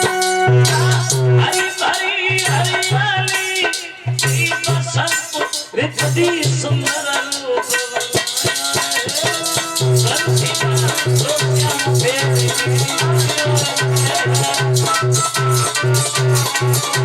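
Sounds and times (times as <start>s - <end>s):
low drum beat: 0.0s - 7.4s, 8.2s - 17.0s
shaker and cymbal rhythm: 0.0s - 17.0s
melodic instrument phrase: 8.8s - 17.0s.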